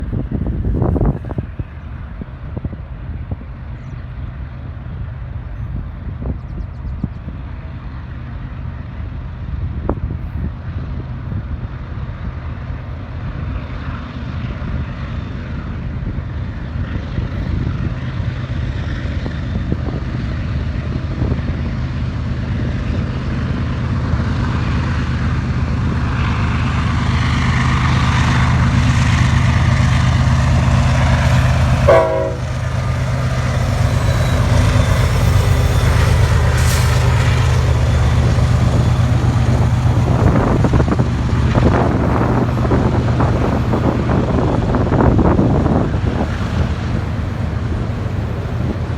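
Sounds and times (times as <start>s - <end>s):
locomotive engine drone: 0.0s - 48.9s
train horn blast: 31.2s - 33.3s.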